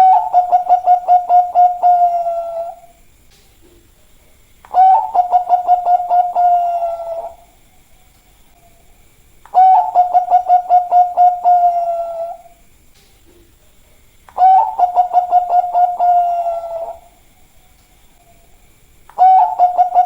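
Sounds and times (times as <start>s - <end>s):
dove cooing: 0.0s - 3.0s, 4.7s - 7.6s, 9.5s - 12.6s, 14.3s - 17.2s, 19.1s - 20.0s.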